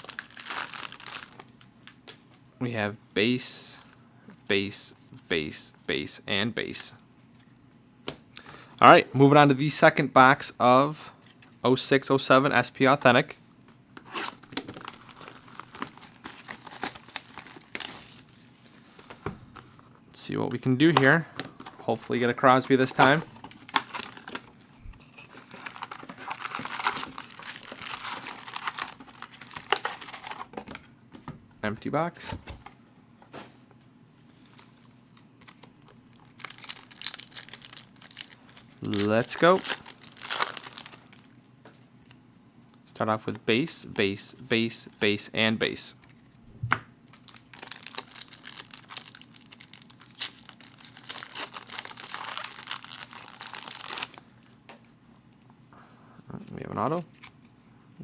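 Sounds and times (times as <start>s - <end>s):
plastic wrap crinkling and tearing: 0.0s - 2.0s, 14.0s - 18.7s, 23.0s - 30.5s, 34.4s - 41.3s, 47.1s - 54.2s.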